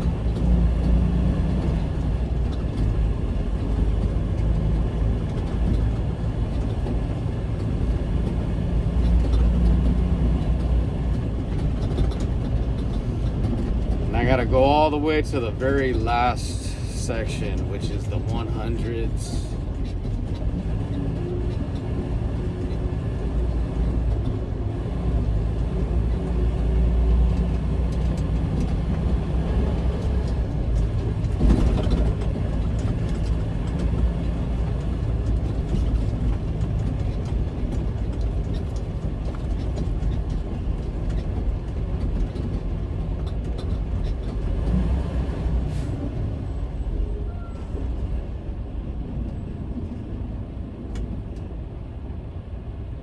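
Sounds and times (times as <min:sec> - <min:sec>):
truck diesel engine running: 0:00.0 - 0:46.9
road noise: 0:00.0 - 0:53.0.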